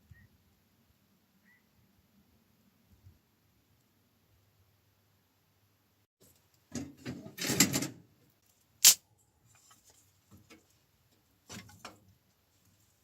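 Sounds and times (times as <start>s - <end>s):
objects rustling and scraping: 9.4s - 13.0s.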